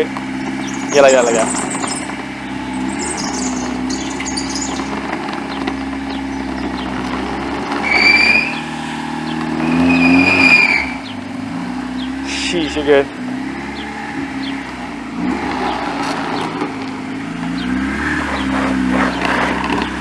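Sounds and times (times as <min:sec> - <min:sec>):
car engine at low speed: 0:00.0 - 0:20.0
loud high squeals: 0:00.5 - 0:05.2, 0:07.7 - 0:11.2.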